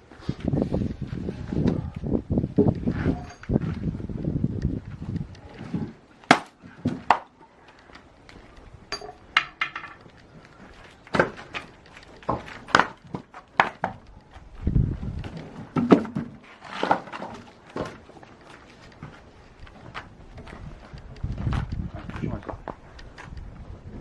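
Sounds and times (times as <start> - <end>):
axe splitting logs: 6.2 - 7.4, 11.0 - 14.0.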